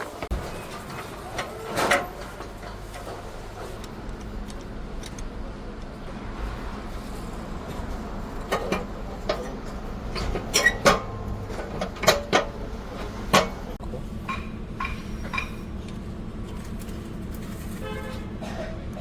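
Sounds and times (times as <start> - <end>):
metallic clanks of tools: 14.2 - 15.7.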